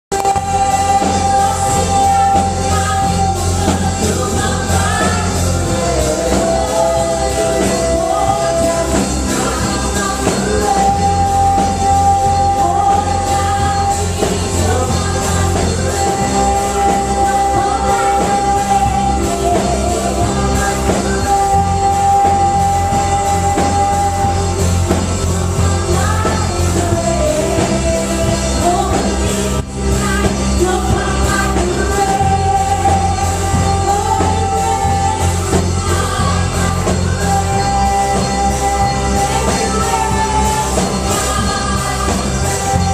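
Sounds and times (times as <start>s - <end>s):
bass line: 0.0s - 42.9s
worship band playing: 0.0s - 42.9s
person singing: 0.1s - 42.9s
steady drum beat: 0.1s - 42.9s.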